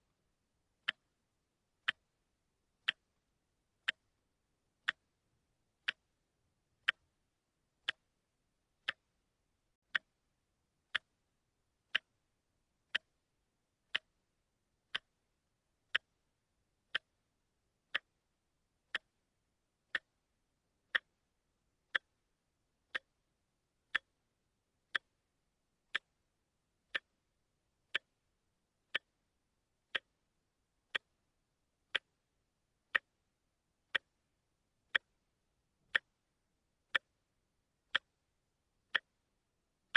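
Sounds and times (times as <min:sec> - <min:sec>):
watch ticking: 0:00.8 - 0:04.2, 0:04.8 - 0:07.2, 0:07.8 - 0:08.2, 0:08.8 - 0:09.2, 0:09.8 - 0:10.2, 0:10.9 - 0:12.3, 0:12.9 - 0:14.2, 0:14.8 - 0:19.2, 0:19.8 - 0:22.3, 0:22.9 - 0:24.3, 0:24.9 - 0:25.3, 0:25.9 - 0:27.3, 0:27.9 - 0:39.9.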